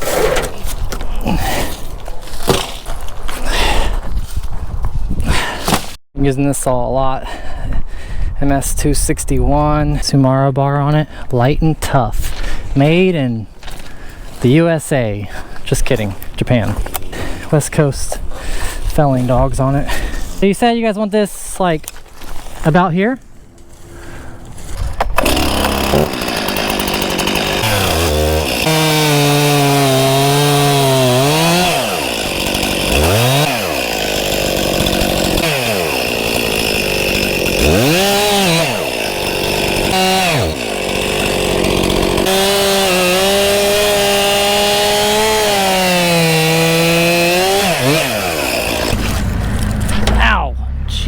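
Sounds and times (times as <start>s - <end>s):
chainsaw cutting wood: 0.0s - 3.7s, 24.8s - 51.0s.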